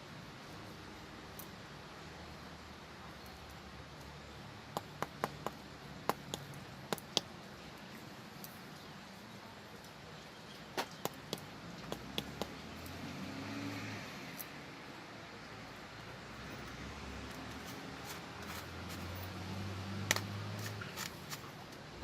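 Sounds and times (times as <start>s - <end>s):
stone on stone clicks: 4.8s - 7.3s, 10.8s - 13.0s.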